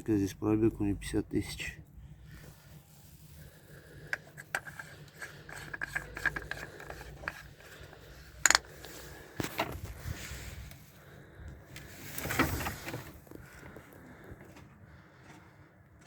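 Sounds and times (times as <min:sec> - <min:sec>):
low steady hum: 0:00.0 - 0:16.0
rubbing: 0:04.4 - 0:10.6.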